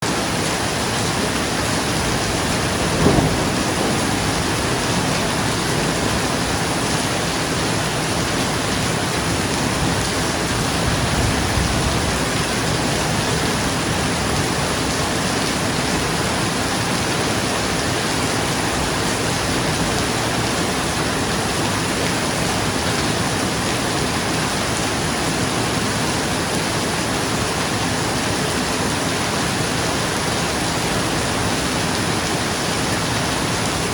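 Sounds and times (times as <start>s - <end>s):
rain on a roof: 0.0s - 33.9s
rolling thunder: 1.7s - 15.0s
thunderclap: 1.9s - 7.0s.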